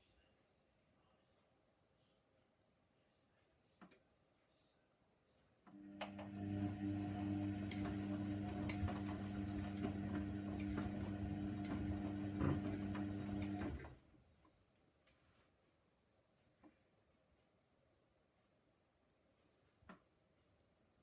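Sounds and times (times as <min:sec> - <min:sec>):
washing machine drum tumbling: 0:06.3 - 0:13.9.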